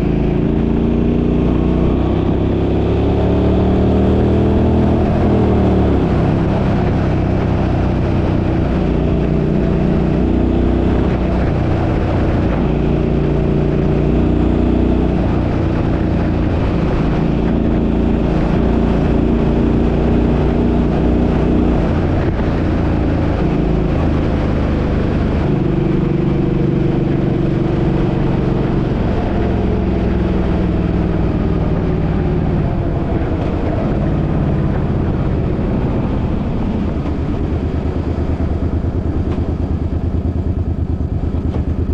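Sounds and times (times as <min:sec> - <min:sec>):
car engine running: 0:00.0 - 0:41.9
road noise: 0:00.0 - 0:41.9.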